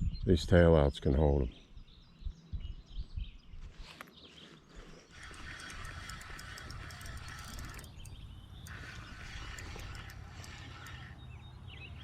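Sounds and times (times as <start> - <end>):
fishing reel cranking: 5.1 - 11.4.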